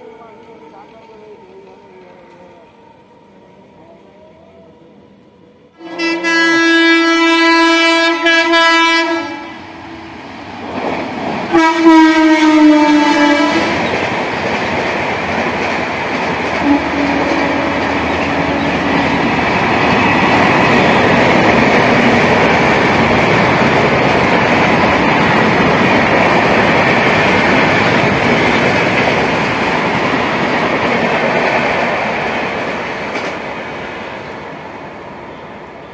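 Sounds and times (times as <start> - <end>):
train rumble and wheel clatter: 0.0 - 35.9
train horn blasts: 5.7 - 9.7, 11.5 - 13.9, 16.6 - 19.2.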